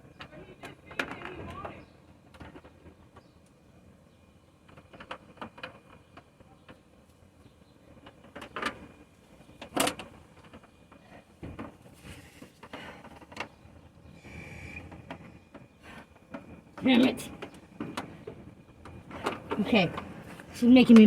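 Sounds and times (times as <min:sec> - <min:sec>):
knocks and clicks handling wood: 0:14.9 - 0:20.1.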